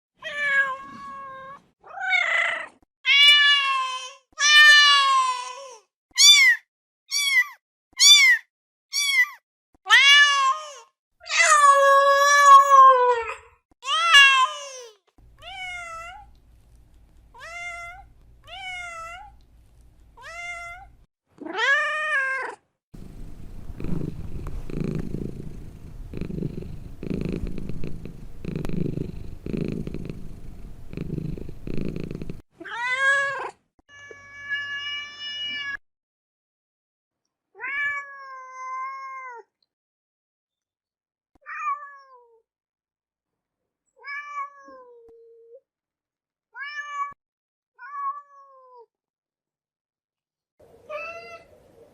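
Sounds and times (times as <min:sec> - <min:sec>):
cat purring: 0:23.0 - 0:32.4.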